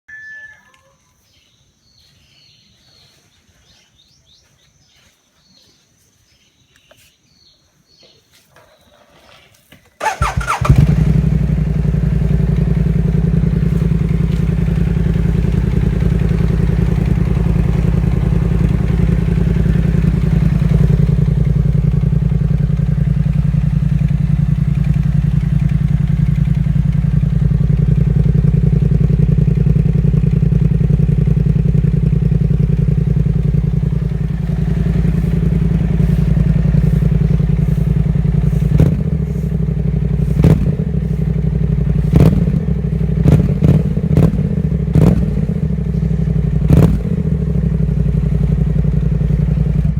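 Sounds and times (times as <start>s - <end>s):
scooter engine starting and idling: 10.0s - 49.9s.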